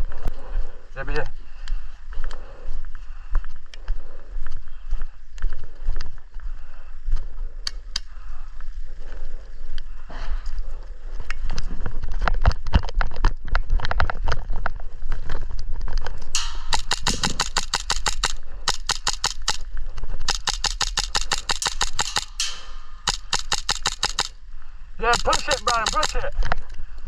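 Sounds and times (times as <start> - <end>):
sharp clicks and knocks: 16.4 - 19.6, 20.3 - 24.4, 25.1 - 26.3
airsoft rifle bursts: 16.4 - 19.7, 20.3 - 24.4, 25.0 - 26.3.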